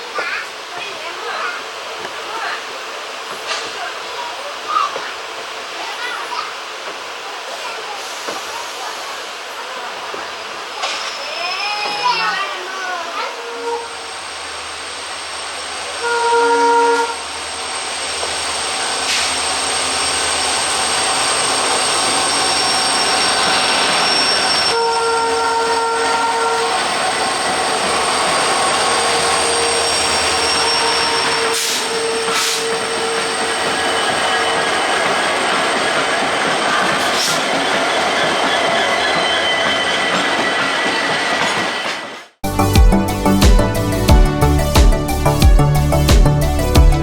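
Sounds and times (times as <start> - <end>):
passenger train rumbling: 0.0 - 47.0
locomotive horn: 13.3 - 14.1, 15.9 - 17.4, 24.5 - 27.0, 28.8 - 33.2.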